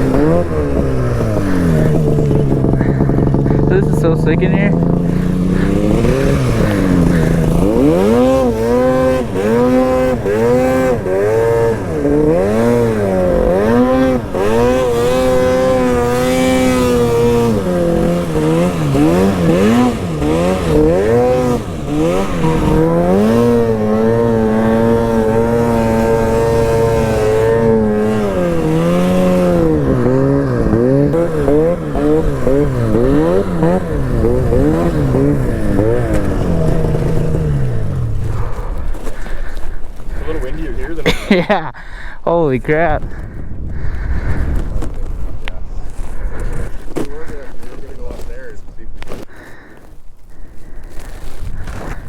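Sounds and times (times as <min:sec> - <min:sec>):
snowmobile engine revving: 0:00.0 - 0:49.7.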